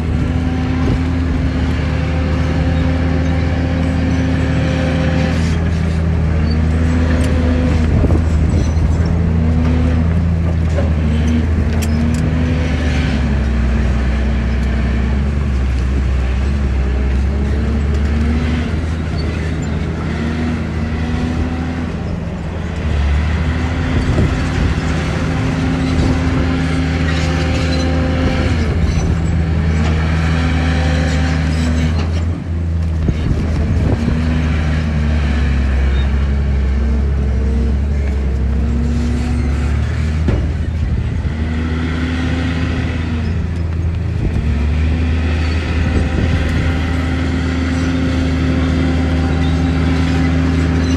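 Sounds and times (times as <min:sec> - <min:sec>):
large diesel engine under load: 0:00.0 - 0:50.9
knocks and clatter: 0:40.1 - 0:40.8.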